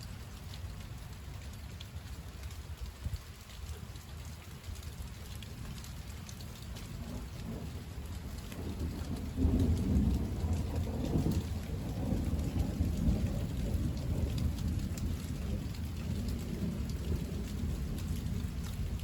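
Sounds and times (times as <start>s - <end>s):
steady rain falling: 0.0s - 19.0s
thunder rumbling: 6.8s - 19.0s.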